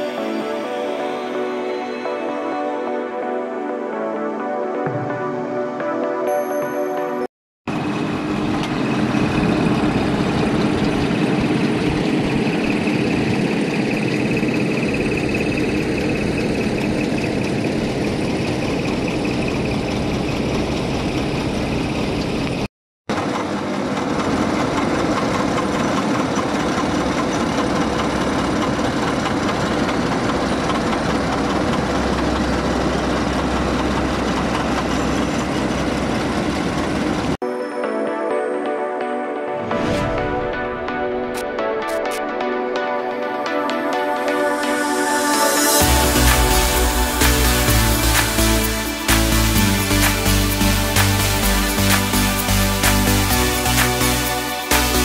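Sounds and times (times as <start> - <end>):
heavy machinery engine noise: 7.7 - 37.4.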